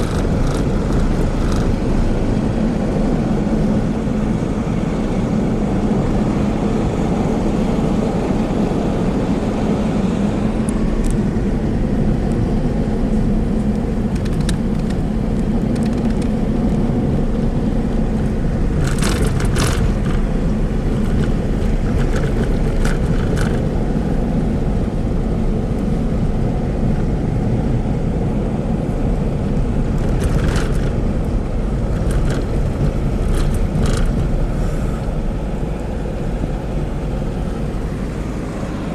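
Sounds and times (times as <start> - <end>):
short rattles or knocks: 0.0 - 1.8
car engine and road rumble: 0.0 - 38.9.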